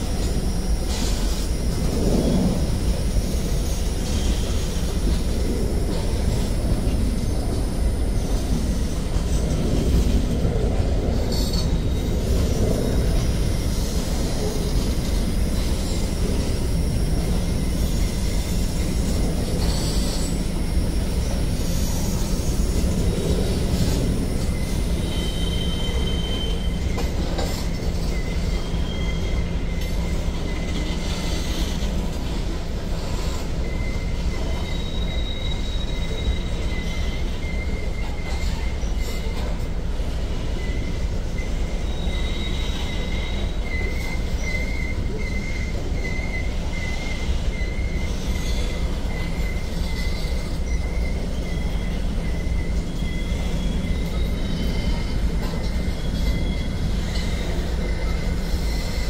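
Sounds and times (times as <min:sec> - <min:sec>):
freight train wheels rumbling: 0:00.0 - 0:59.0
high-pitched wheel squeals: 0:12.9 - 0:32.1, 0:32.9 - 0:39.6, 0:40.4 - 0:59.0.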